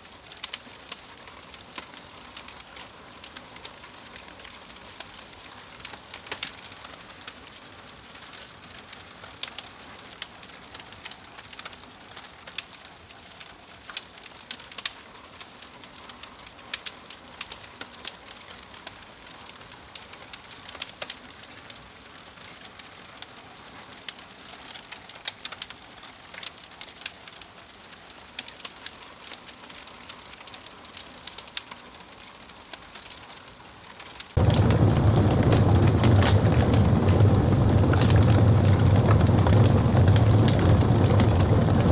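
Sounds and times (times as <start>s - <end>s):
fire crackling: 0.0s - 41.9s
loud low rumbling: 34.4s - 41.9s.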